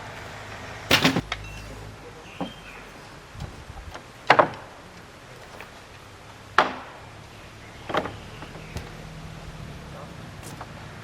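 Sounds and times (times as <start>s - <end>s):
sharp knocks: 0.9s - 1.4s, 6.6s - 7.2s.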